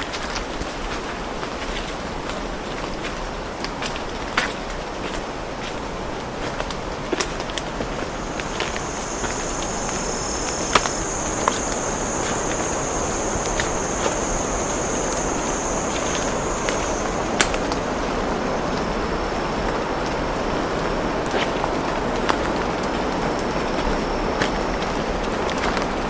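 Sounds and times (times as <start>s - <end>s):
insect high-pitched drone: 7.4s - 26.0s
steady rushing background: 7.6s - 20.8s.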